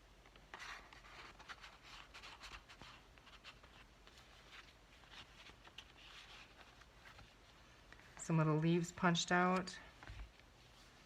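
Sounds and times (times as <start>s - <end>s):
light ticks and scrapes of paper: 0.2s - 8.2s
faint paper rustling: 0.2s - 11.0s.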